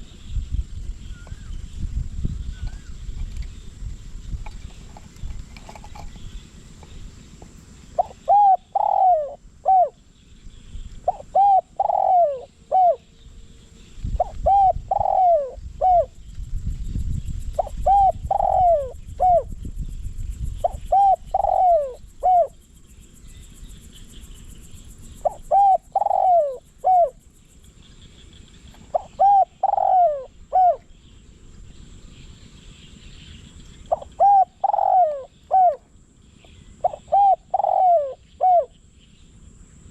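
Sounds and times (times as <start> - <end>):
dove cooing: 7.9 - 10.0, 11.0 - 13.1, 14.0 - 16.2, 17.5 - 19.6, 20.5 - 22.6, 25.2 - 27.2, 28.7 - 30.9, 33.8 - 38.8.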